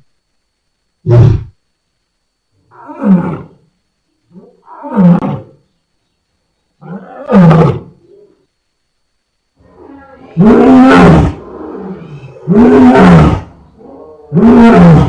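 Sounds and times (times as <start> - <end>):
lion roaring: 2.7 - 3.6, 4.3 - 5.6, 6.8 - 8.4, 9.6 - 15.0.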